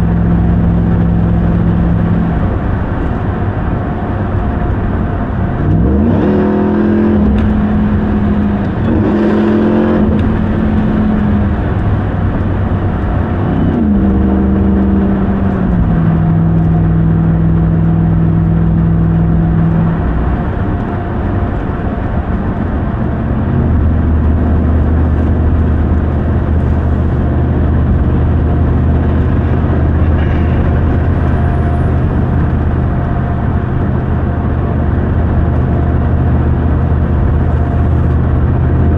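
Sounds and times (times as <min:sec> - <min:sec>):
pickup truck engine accelerating: 0:00.0 - 0:38.9.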